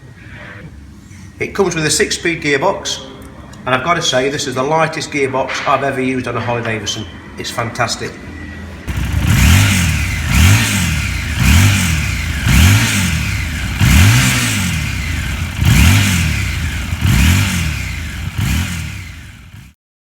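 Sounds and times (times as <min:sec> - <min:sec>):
motorcycle engine revving: 0:08.9 - 0:19.8.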